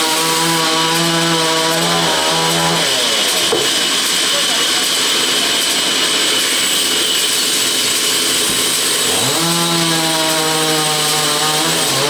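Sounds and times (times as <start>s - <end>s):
saw whining and cutting: 0.0s - 12.0s.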